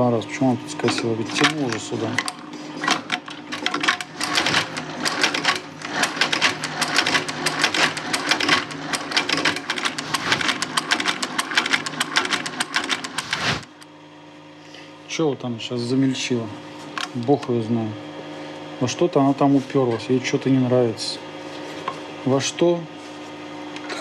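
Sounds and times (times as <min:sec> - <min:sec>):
motor hum: 0:00.0 - 0:19.3
stitching machine clattering: 0:00.8 - 0:13.7.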